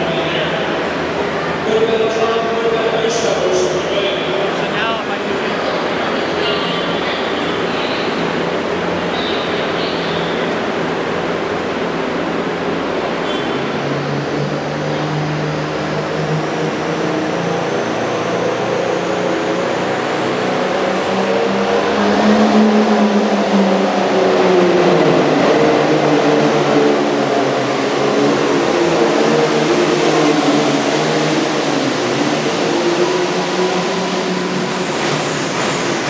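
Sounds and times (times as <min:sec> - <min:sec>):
tractor diesel engine under load: 0:23.9 - 0:36.0.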